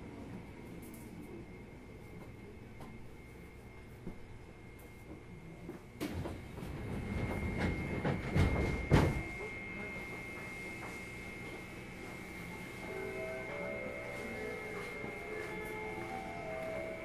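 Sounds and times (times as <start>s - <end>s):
train rumbling and clattering: 4.9s - 17.0s
faint high tone: 12.4s - 17.0s.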